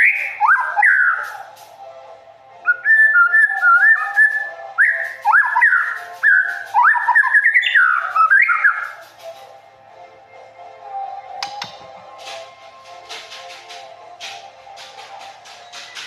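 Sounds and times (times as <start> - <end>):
songbird whistling: 0.0 - 1.5, 2.6 - 9.3.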